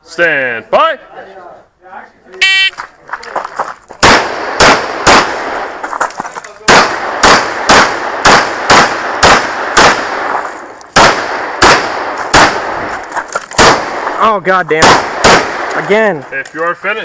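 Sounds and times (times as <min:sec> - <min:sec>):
pistol shots with echo: 0:04.0 - 0:05.8, 0:06.6 - 0:13.0, 0:13.6 - 0:14.2, 0:14.8 - 0:16.1.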